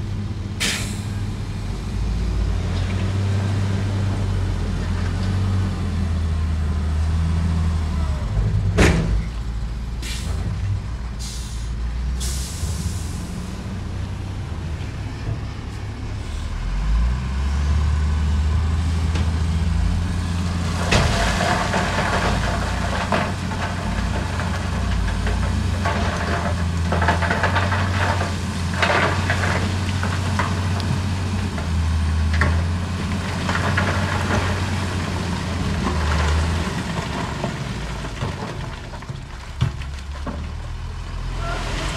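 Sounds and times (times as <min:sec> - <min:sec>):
diesel machinery rumbling: 0:00.0 - 0:41.9
air brake hisses: 0:00.6 - 0:01.1, 0:10.0 - 0:10.4, 0:11.2 - 0:13.3
rocks tumbling and scraping: 0:18.5 - 0:41.9.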